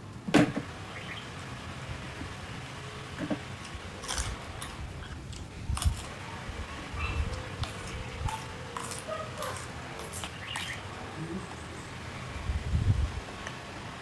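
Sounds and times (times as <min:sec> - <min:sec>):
crunching raw vegetables: 0:03.2 - 0:11.4.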